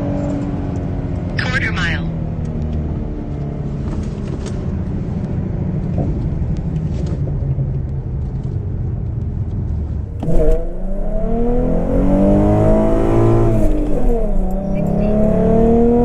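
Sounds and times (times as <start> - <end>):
car engine accelerating hard: 10.1 - 16.0.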